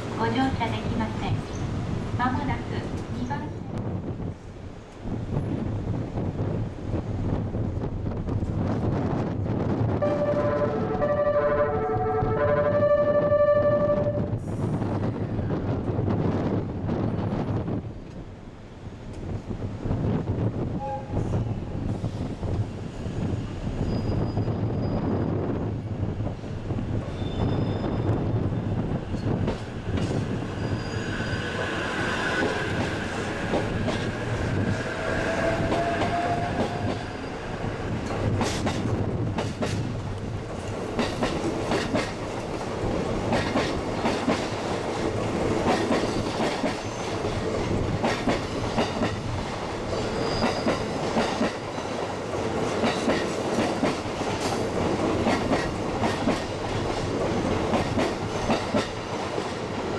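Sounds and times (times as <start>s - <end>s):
train wheels clattering over rail joints: 29.1s - 30.4s, 38.0s - 59.9s.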